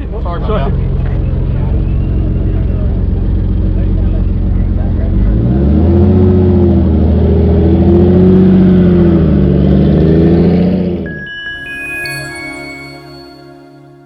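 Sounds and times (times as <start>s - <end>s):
car engine revving: 0.5s - 11.1s.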